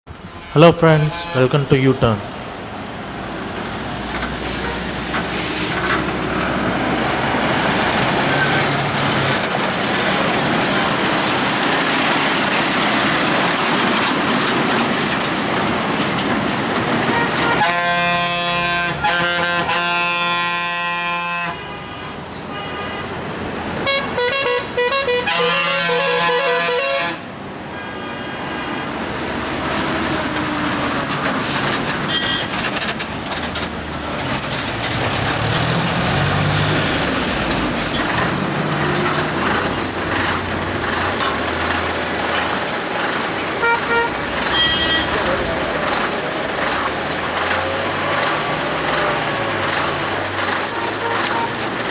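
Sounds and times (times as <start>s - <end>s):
heavy vehicle engine under load: 0.1s - 27.8s, 28.5s - 51.9s
musical truck horn notes: 0.2s - 2.2s, 17.0s - 23.2s, 23.8s - 28.7s, 43.6s - 45.2s
vehicle horn blast: 0.3s - 2.2s, 17.1s - 23.2s, 23.8s - 28.7s, 43.6s - 45.2s.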